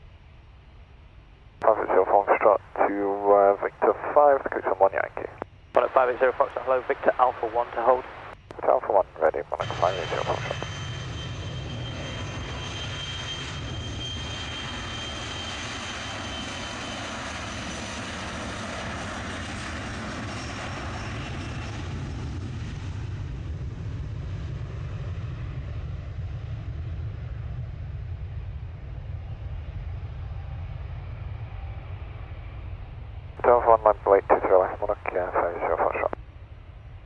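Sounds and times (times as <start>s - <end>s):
jet engine high whine: 0.0s - 37.0s
jet engines rumbling: 1.4s - 21.0s, 33.4s - 36.2s.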